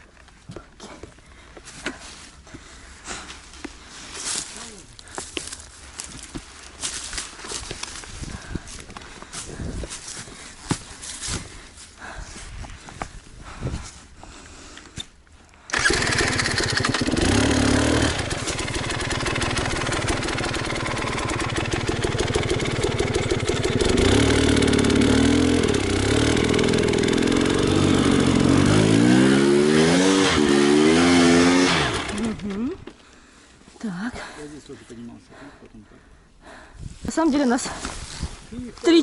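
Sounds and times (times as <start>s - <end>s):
motorcycle engine revving: 15.7s - 32.7s.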